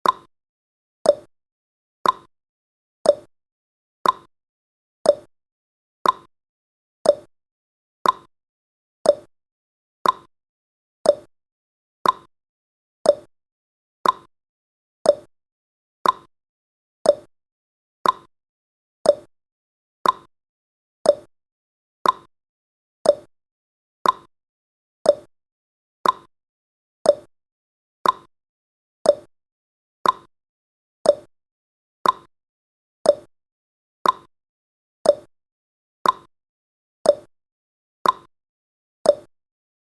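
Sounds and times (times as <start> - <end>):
clock ticks: 0.0 - 0.3, 1.1 - 1.3, 2.0 - 2.3, 3.1 - 3.3, 4.0 - 4.3, 5.1 - 5.3, 6.0 - 6.3, 7.1 - 7.3, 8.0 - 8.3, 9.1 - 9.3, 10.0 - 10.3, 11.1 - 11.3, 12.0 - 12.3, 13.1 - 13.3, 14.0 - 14.3, 15.1 - 15.3, 16.0 - 16.3, 17.0 - 17.3, 18.0 - 18.3, 19.0 - 19.3, 20.0 - 20.3, 21.1 - 21.3, 22.0 - 22.3, 23.0 - 23.3, 24.0 - 24.3, 25.1 - 25.3, 26.0 - 26.3, 27.0 - 27.3, 28.0 - 28.3, 29.0 - 29.3, 30.0 - 30.3, 31.1 - 31.3, 32.0 - 32.3, 33.1 - 33.3, 34.0 - 34.3, 35.0 - 35.3, 36.0 - 36.3, 37.1 - 37.3, 38.0 - 38.3, 39.1 - 39.3.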